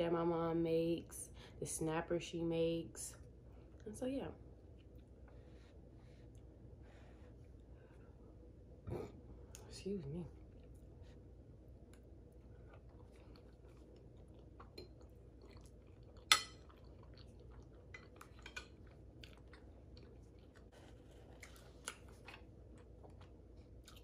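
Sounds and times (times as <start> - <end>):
person chewing: 10.5 - 24.0.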